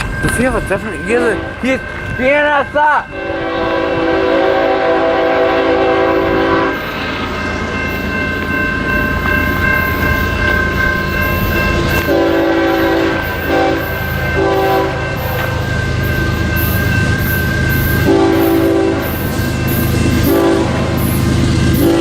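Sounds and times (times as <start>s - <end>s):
high ringing tone: 0.0s - 22.0s
train rumbling: 0.0s - 22.0s
train air horn blasts: 3.1s - 6.9s, 12.0s - 15.6s, 18.0s - 19.3s, 20.1s - 22.0s.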